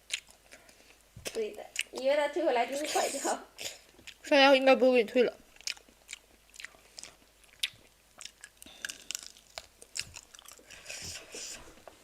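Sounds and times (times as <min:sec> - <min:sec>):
person chewing crunchy food: 0:00.0 - 0:02.0, 0:03.6 - 0:04.2, 0:05.6 - 0:11.6.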